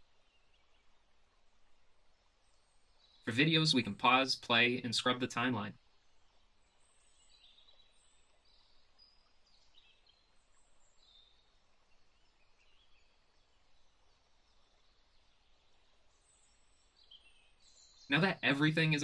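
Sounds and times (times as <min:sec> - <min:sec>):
faint background hiss: 0:00.0 - 0:19.0
faint high bird chirps: 0:06.7 - 0:19.0.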